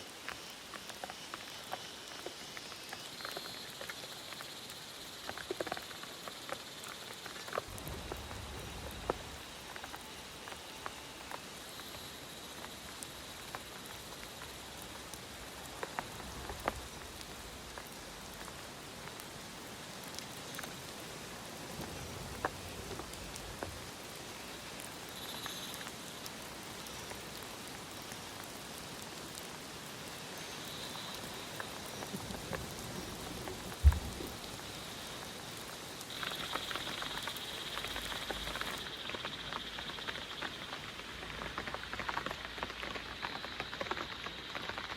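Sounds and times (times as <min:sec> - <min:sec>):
sharp raindrops ticking: 0:00.0 - 0:44.9
steady rain falling: 0:00.0 - 0:44.9.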